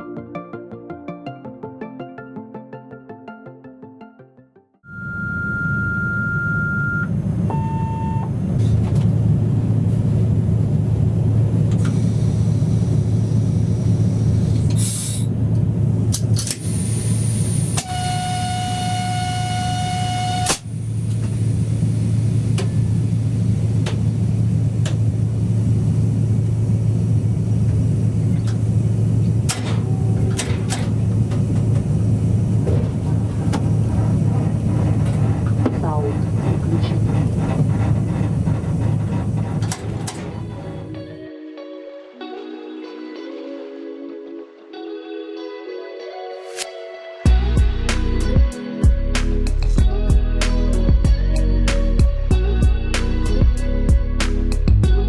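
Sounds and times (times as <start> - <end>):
horn-like tone: 4.8 - 8.3, 17.8 - 20.6
locomotive cab drone: 4.8 - 41.2, 47.3 - 55.0
short beeps: 4.9 - 8.3.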